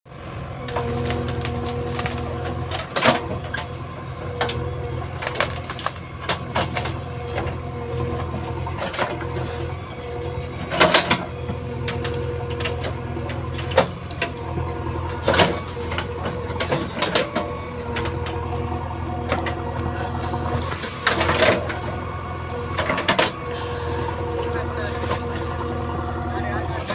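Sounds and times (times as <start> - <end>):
diesel engine running: 0.1 - 26.9
machine clanking and knocking: 10.5 - 23.6.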